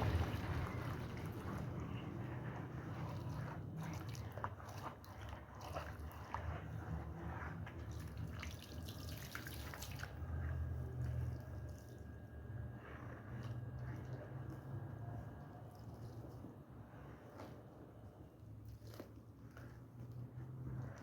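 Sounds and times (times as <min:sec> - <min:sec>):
water dripping and splashing: 0:00.0 - 0:01.8, 0:07.9 - 0:10.3
low steady hum: 0:00.0 - 0:21.0.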